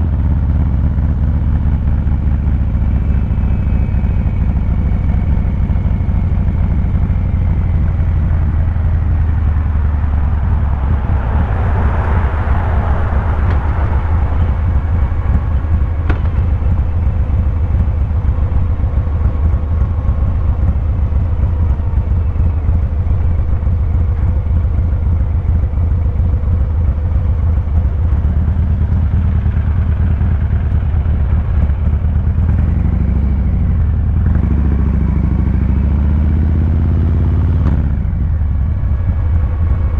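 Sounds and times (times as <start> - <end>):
motorcycle exhaust pulsing: 0.0 - 39.9
rush of noise: 8.1 - 24.4.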